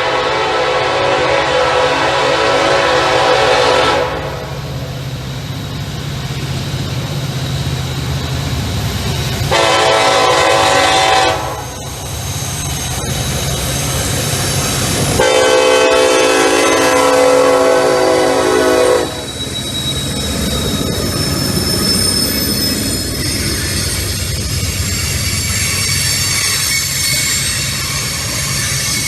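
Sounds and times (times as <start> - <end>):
locomotive horn blasts: 0.0 - 4.6, 9.5 - 11.8, 15.2 - 19.3
locomotive engine rumble: 0.0 - 29.0
rail cars passing: 0.0 - 29.0.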